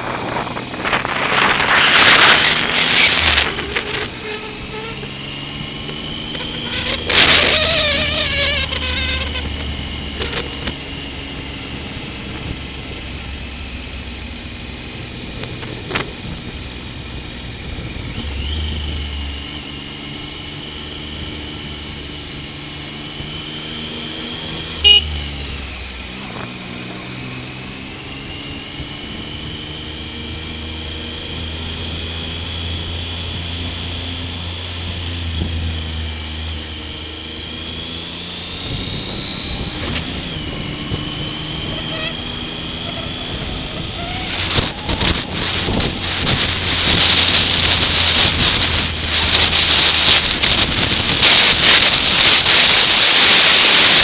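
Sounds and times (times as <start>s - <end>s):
wind rumble on microphone: 0.0s - 4.9s, 14.6s - 19.5s, 38.4s - 54.0s
motorcycle engine running: 0.0s - 54.0s.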